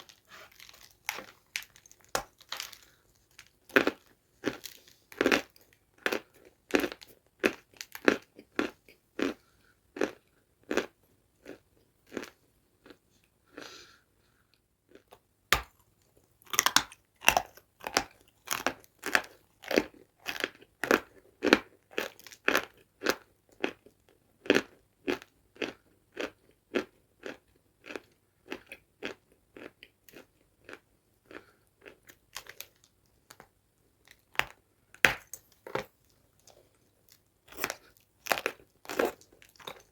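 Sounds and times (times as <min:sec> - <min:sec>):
crunchy food chewing: 0:00.0 - 0:14.0, 0:14.9 - 0:39.9.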